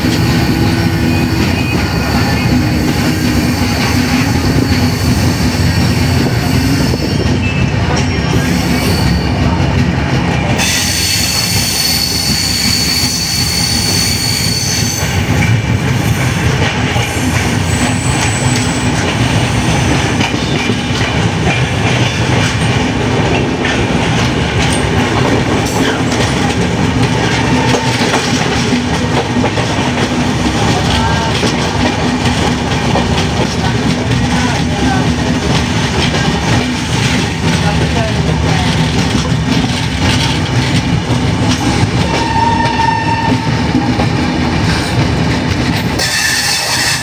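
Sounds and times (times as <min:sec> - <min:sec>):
train wheels rumbling on rails: 0:00.0 - 0:47.0
high wheel squeal: 0:00.2 - 0:09.4, 0:10.6 - 0:15.2.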